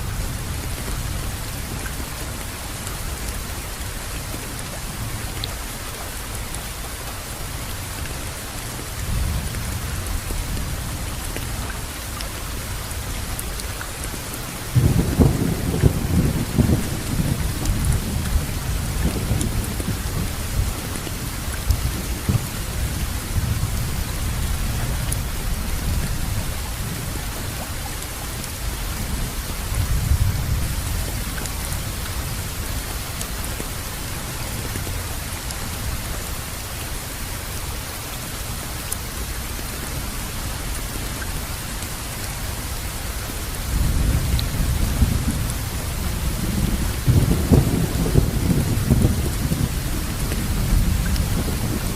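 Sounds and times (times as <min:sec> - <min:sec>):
steady rain falling: 0:00.0 - 0:51.9
low thunder rumbling: 0:14.6 - 0:27.6, 0:28.7 - 0:32.8, 0:43.6 - 0:51.9.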